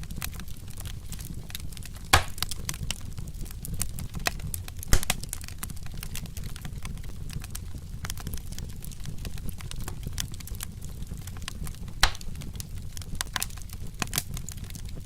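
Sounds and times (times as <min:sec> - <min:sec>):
wood fire crackling: 0:00.0 - 0:15.0
sharp loud fire pops: 0:02.1 - 0:02.6, 0:04.9 - 0:05.3, 0:12.0 - 0:12.3.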